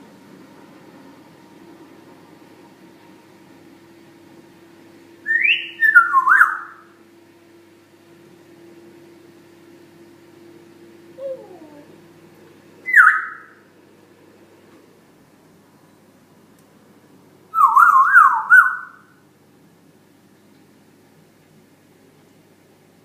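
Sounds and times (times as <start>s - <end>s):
parrot whistling: 5.3s - 6.8s, 12.8s - 13.6s, 17.5s - 19.1s.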